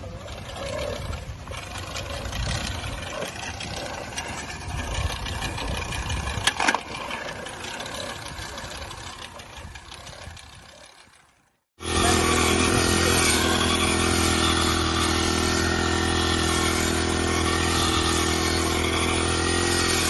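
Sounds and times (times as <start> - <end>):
brush cutter engine rattling: 0.0 - 20.0.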